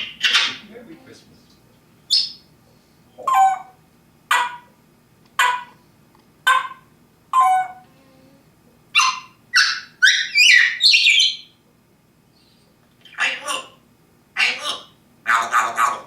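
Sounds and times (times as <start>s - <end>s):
parrot mimicking dog barks: 3.2s - 4.8s, 5.4s - 5.8s, 6.4s - 7.8s, 8.9s - 11.2s, 13.1s - 13.8s, 14.4s - 16.0s.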